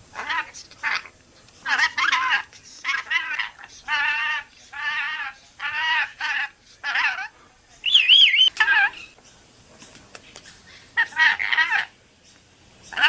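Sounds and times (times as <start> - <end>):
parrot calling: 0.1 - 9.2, 11.0 - 12.0
high wavering whistle: 7.8 - 8.5.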